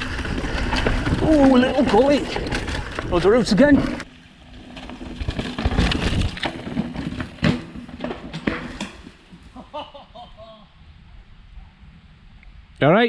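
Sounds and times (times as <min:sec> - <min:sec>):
mountain bike clattering over roots: 0:00.0 - 0:09.6.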